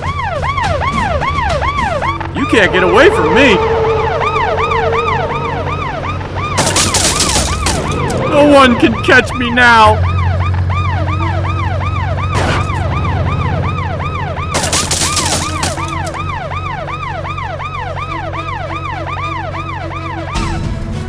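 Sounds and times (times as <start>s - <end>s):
low engine hum: 0.0s - 14.6s
police siren wailing: 0.0s - 20.8s.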